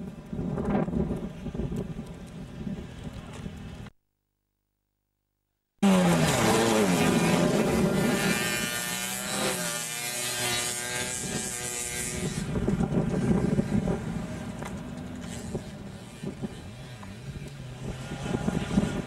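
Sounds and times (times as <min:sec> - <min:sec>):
car engine revving: 0:05.8 - 0:19.0.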